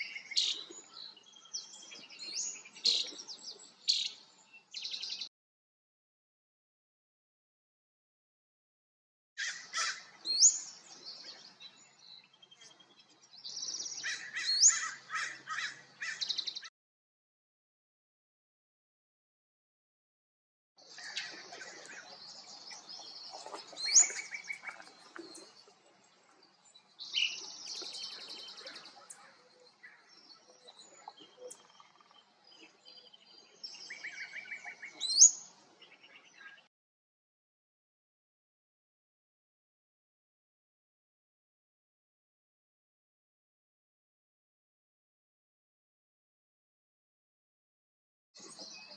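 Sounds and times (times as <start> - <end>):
wild birds calling and singing: 9.4 - 16.7, 20.8 - 36.7.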